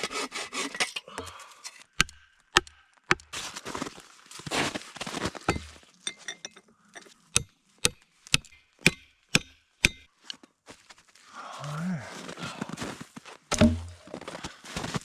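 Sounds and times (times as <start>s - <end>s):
sharp strikes: 13.5s - 14.1s.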